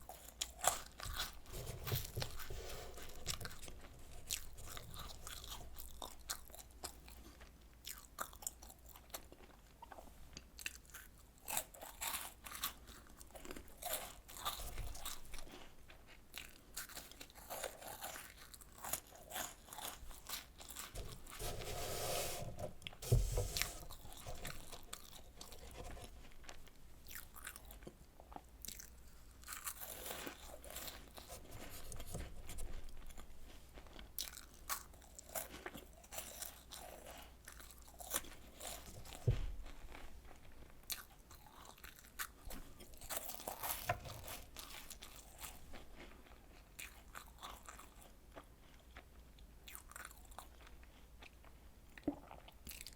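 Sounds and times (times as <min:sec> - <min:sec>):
chewing and crunching biscuits: 0:00.0 - 0:21.8, 0:22.6 - 0:52.9
thump: 0:22.4 - 0:24.6, 0:39.2 - 0:39.6.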